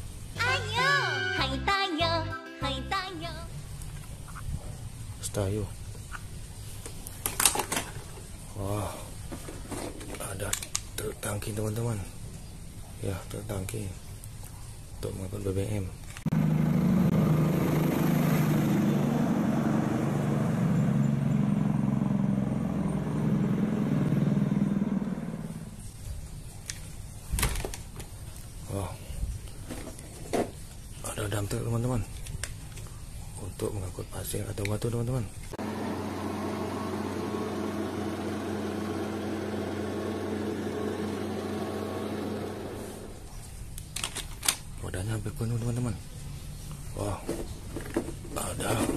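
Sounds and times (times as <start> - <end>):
vehicle engine running: 16.3 - 25.9, 35.6 - 43.3
steady mechanical hum: 18.8 - 48.9.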